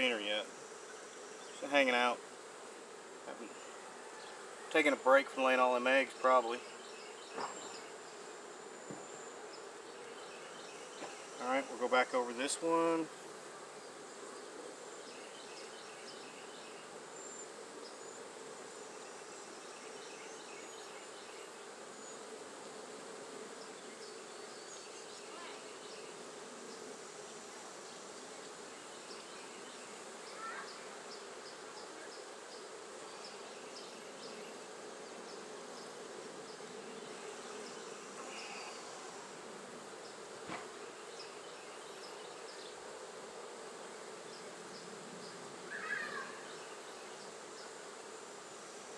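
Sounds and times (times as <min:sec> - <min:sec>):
bees buzzing: 0:00.0 - 0:48.9
brief knock: 0:40.4 - 0:40.7.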